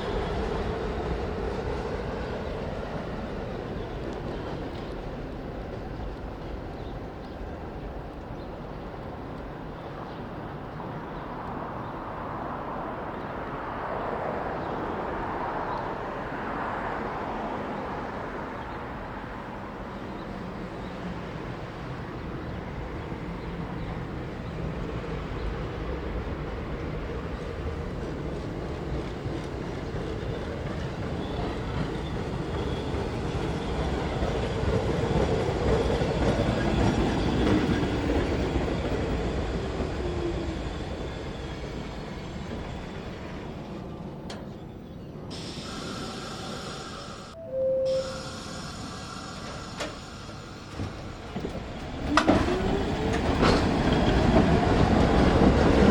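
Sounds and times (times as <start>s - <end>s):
train wheels clacking over rails: 20.4s - 44.6s, 48.3s - 55.9s.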